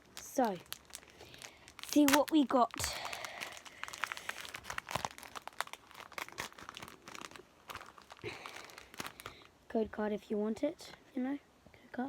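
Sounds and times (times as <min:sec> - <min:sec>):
foil wrapper tearing and crinkling: 0:00.0 - 0:09.5.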